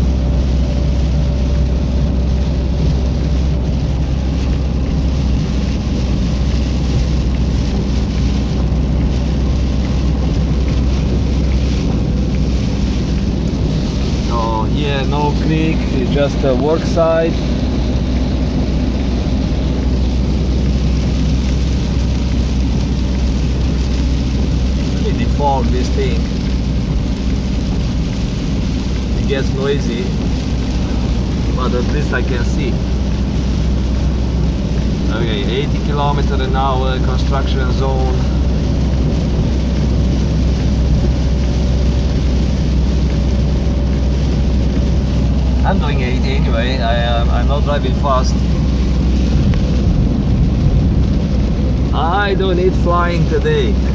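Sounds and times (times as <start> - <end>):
defogger fan blowing: 0.0 - 53.9
rain and spray hiss: 0.0 - 53.9
tyre and engine rumble: 0.0 - 53.9
person speaking: 14.3 - 17.7, 25.0 - 26.3, 29.2 - 30.2, 30.8 - 32.9, 45.6 - 48.6, 51.9 - 53.9.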